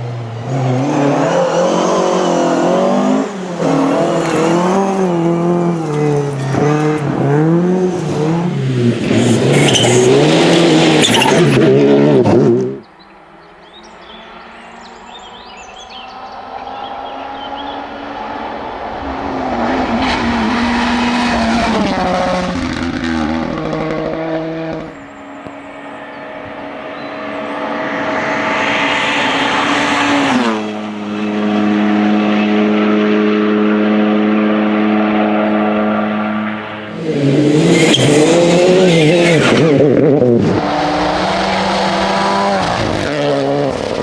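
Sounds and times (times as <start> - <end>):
rally car engine at full throttle: 0.0 - 44.0
car passing by: 13.4 - 44.0.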